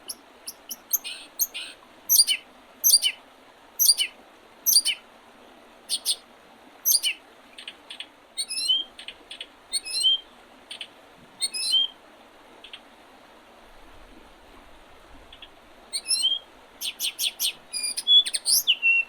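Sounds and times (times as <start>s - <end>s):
songbird singing: 0.0s - 3.2s, 3.8s - 5.0s, 5.9s - 6.2s, 6.8s - 12.0s, 12.6s - 12.8s, 15.3s - 19.0s.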